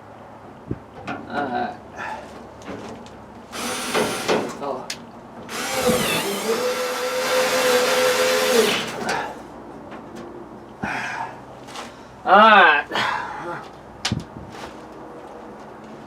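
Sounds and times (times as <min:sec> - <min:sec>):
power drill whining: 0:03.5 - 0:04.6, 0:05.5 - 0:09.4.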